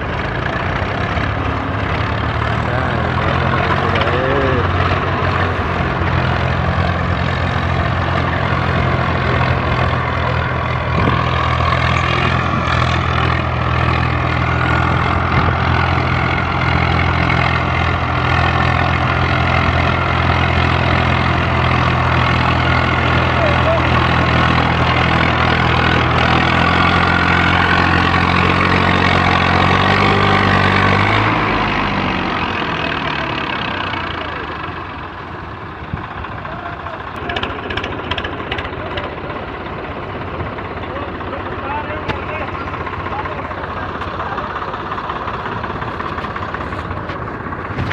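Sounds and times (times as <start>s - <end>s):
tractor diesel engines at high revs: 0.0s - 47.9s.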